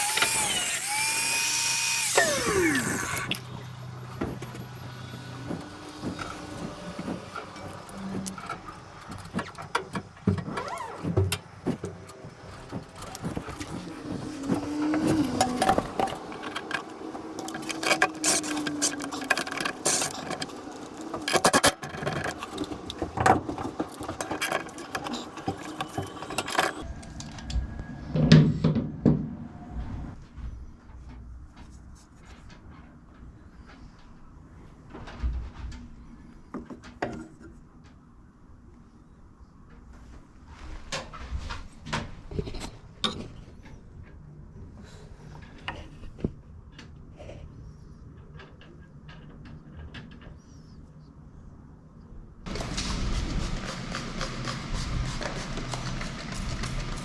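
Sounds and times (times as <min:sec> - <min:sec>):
metal clanks and scrapes: 0:01.9 - 0:28.7.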